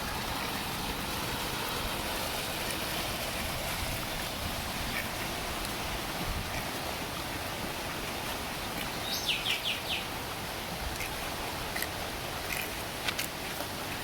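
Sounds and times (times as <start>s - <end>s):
heavy rain hiss: 0.0s - 14.0s
bird chirping: 9.0s - 10.1s.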